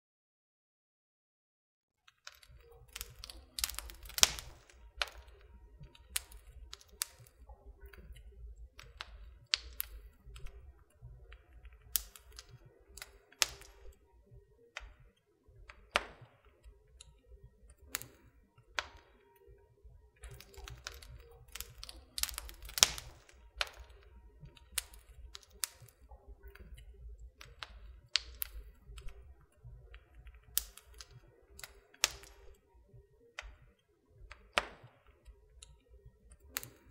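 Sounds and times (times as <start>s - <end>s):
wood fire crackling: 2.1s - 32.8s, 33.4s - 36.9s
low rumble of flames: 2.5s - 14.9s, 15.6s - 32.6s.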